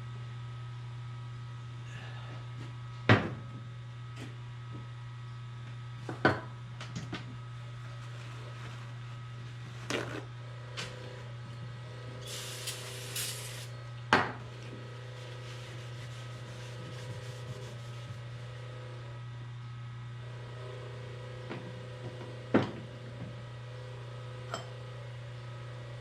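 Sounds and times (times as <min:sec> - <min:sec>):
steady low hum: 0:00.0 - 0:21.9
short hiss: 0:12.2 - 0:13.7.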